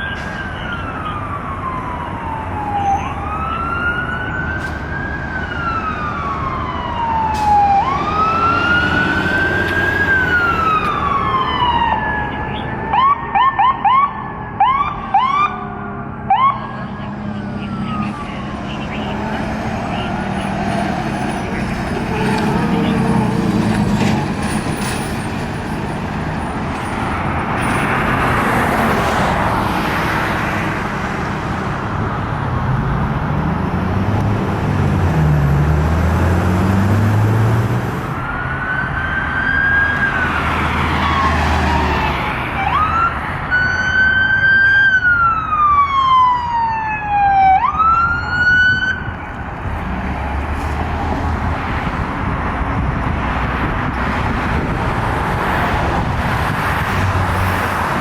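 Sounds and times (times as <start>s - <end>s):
siren wailing: 0.0s - 23.5s, 38.0s - 49.3s
engine and road rumble: 0.0s - 58.0s.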